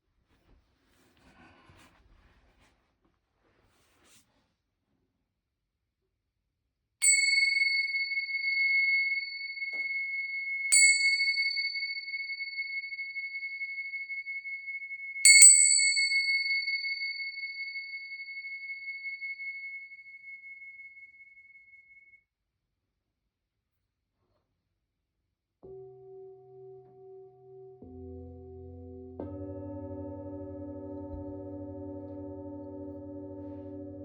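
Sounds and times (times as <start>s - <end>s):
singing bowl strikes ringing: 7.0s - 20.6s.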